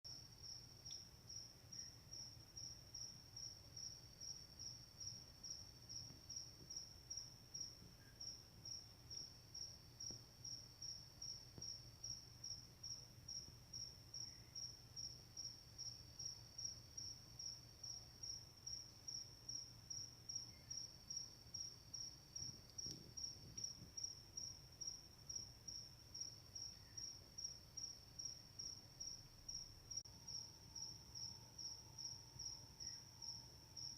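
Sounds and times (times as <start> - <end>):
crickets chirping: 0.1 - 33.9
lower insect trill: 0.1 - 33.9.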